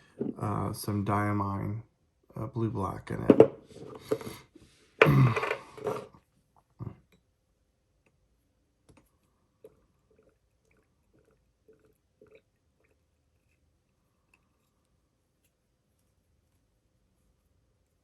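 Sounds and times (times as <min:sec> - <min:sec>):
person speaking: 0:00.1 - 0:04.4.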